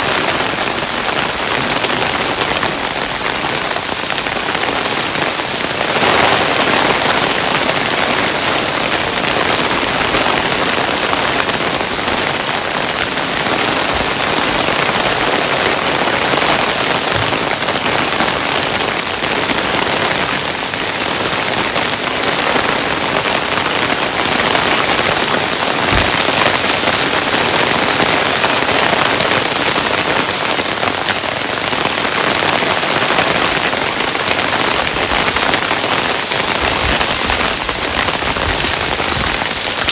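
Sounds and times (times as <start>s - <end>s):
hailstones pattering: 0.0s - 39.9s
heavier hail thud: 25.8s - 26.7s.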